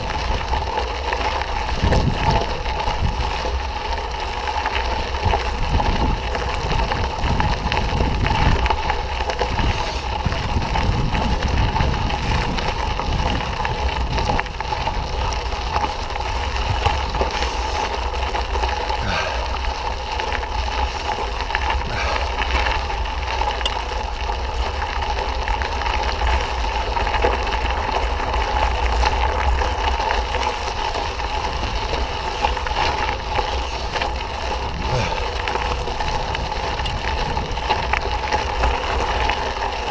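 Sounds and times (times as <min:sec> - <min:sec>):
tyre and trail noise: 0:00.0 - 0:39.9
wind rumble on microphone: 0:00.0 - 0:39.9.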